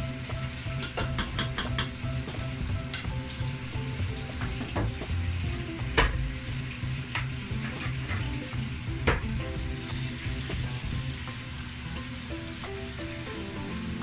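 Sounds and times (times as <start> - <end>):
poultry sizzling in a pot: 0.0 - 14.0
wooden spoon knocking on pot: 0.8 - 2.0.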